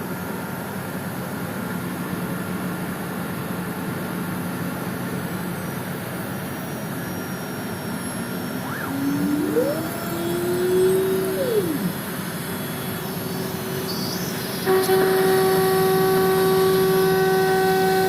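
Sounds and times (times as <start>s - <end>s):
cnc router humming: 7.8s - 18.0s
high whine: 8.0s - 12.4s.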